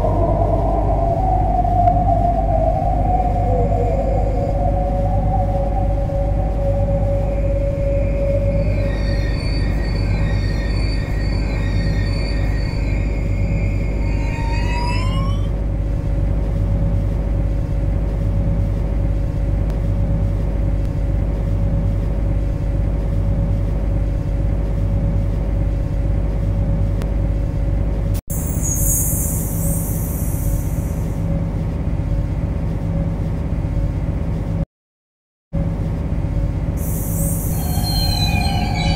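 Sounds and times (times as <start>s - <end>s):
high rising multi-tone whine: 0.0s - 18.4s, 28.3s - 31.4s, 36.8s - 38.9s
steady hum: 0.0s - 34.6s, 35.6s - 38.9s
train low rumble: 0.0s - 34.6s, 35.6s - 38.9s.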